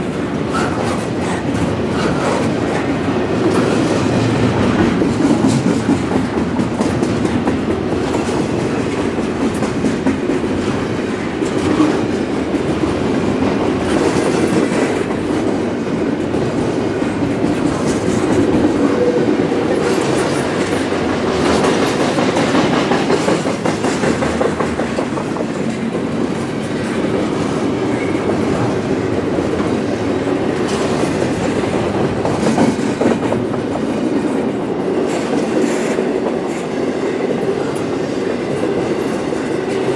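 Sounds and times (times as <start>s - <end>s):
freight train rumbling past: 0.0s - 39.9s
wheels clacking over rails: 0.0s - 39.9s.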